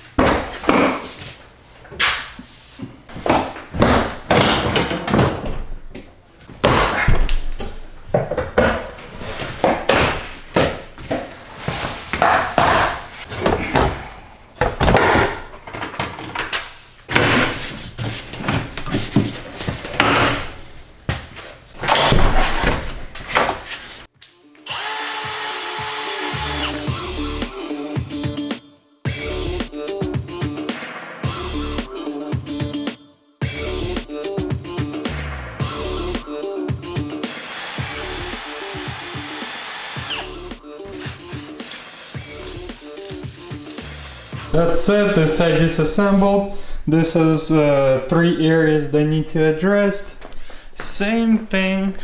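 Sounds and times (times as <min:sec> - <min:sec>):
knocks and clunks of parts: 0:12.1 - 0:23.7
music: 0:24.1 - 0:44.9
power drill running in bursts: 0:24.7 - 0:27.9, 0:37.3 - 0:40.5.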